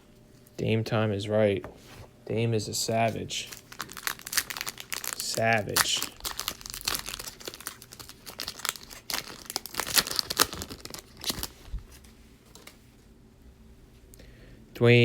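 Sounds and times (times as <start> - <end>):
cards crinkling and rustling: 3.1 - 12.8.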